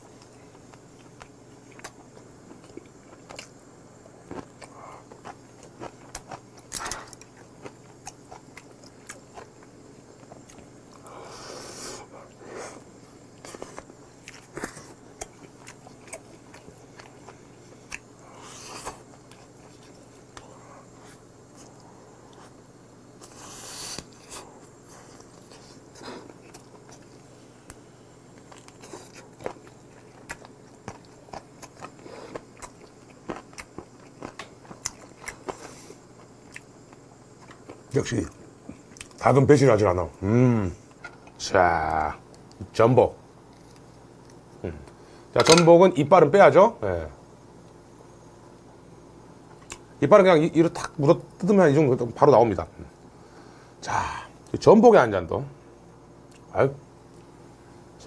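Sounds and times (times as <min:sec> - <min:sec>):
chewing and biting: 0:04.2 - 0:10.7, 0:13.4 - 0:18.2, 0:28.4 - 0:37.9.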